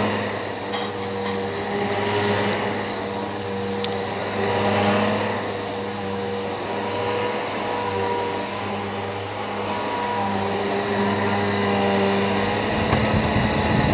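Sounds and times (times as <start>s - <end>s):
vacuum cleaner running: 0.0s - 13.9s
deep rumble: 12.4s - 13.9s.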